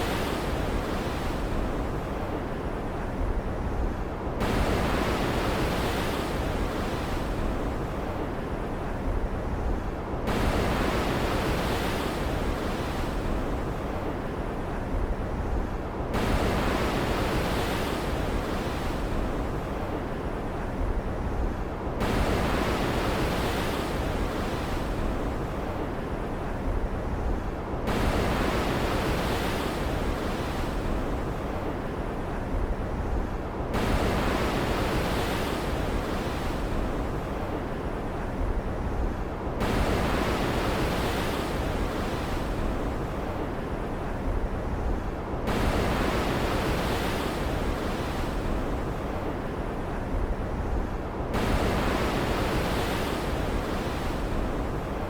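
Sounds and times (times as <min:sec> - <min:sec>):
waves breaking and washing out: 0:00.0 - 0:55.0.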